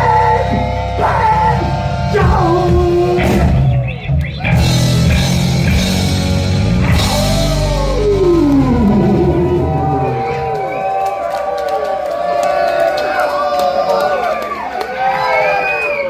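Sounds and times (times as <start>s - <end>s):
person singing: 0.0s - 5.3s, 6.9s - 10.3s
distorted electric guitar: 0.0s - 10.8s
drums: 0.0s - 11.5s
bass: 0.0s - 11.6s.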